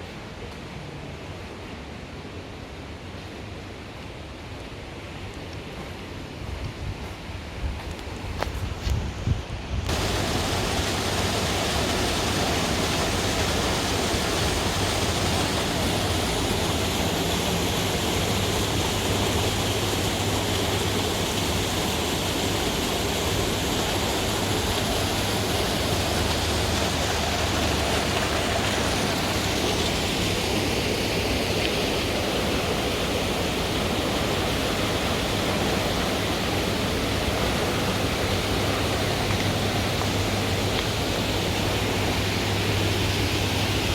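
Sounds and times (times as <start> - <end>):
water rushing from outflow: 9.9 - 43.9.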